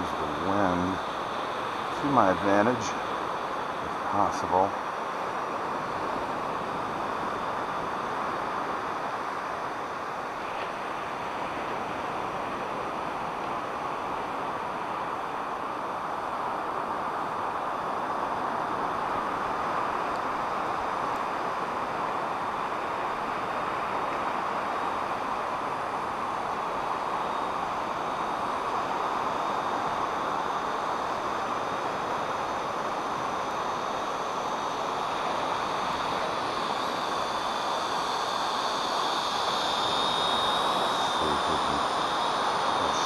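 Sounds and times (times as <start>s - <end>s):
quadcopter motors whining: 0.0s - 10.3s, 24.4s - 43.0s.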